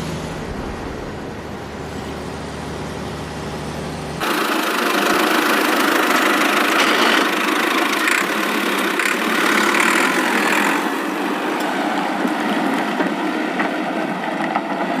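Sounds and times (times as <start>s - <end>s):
small motor grinding: 4.2s - 11.2s.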